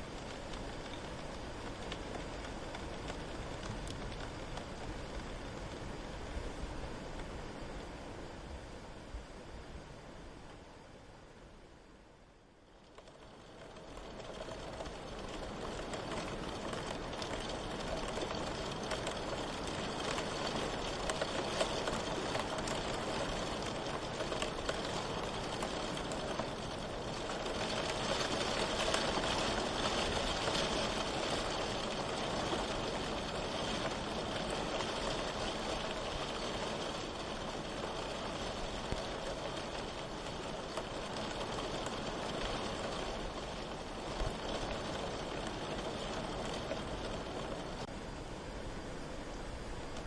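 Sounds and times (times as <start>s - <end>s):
heavy rain patter: 0.0s - 9.4s, 12.4s - 50.0s.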